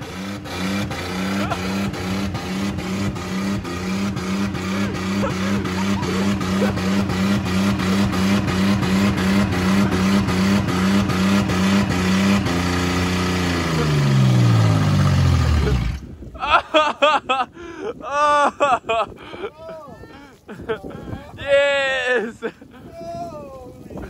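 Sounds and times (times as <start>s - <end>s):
car engine bouncing off rev limiter: 0.0s - 16.1s.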